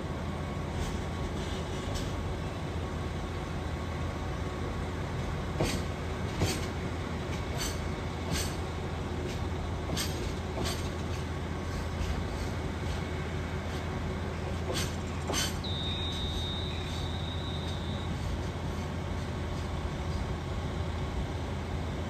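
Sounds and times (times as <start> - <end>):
diesel train engine hum: 0.0 - 22.0
wheels clacking over rail joints: 5.5 - 13.1, 13.7 - 16.7.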